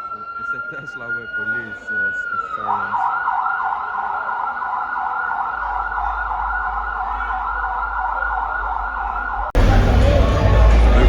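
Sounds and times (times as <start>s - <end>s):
electronic siren yelping: 0.0s - 11.0s
low rumble: 8.7s - 11.0s.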